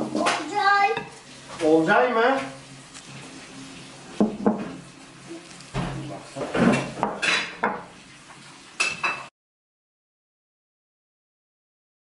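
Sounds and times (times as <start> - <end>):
dishes and cutlery clattering: 5.8 - 7.9, 8.8 - 9.3.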